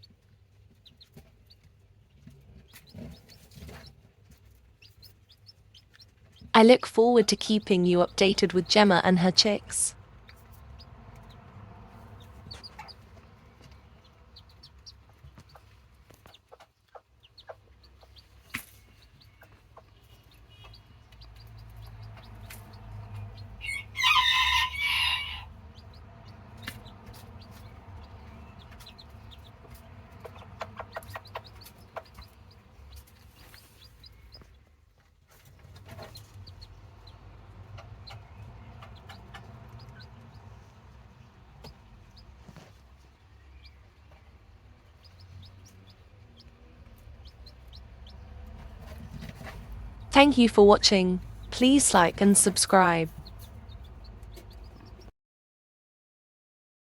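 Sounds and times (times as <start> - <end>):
chickens clucking: 12.1 - 20.0, 20.6 - 34.6, 35.6 - 40.6
rooster crowing: 23.6 - 25.5.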